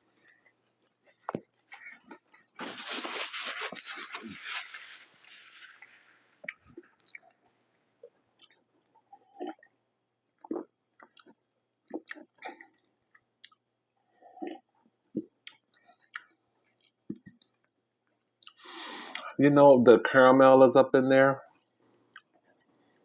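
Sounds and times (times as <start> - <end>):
person chewing food: 8.0 - 9.8, 10.4 - 19.3, 21.5 - 23.0.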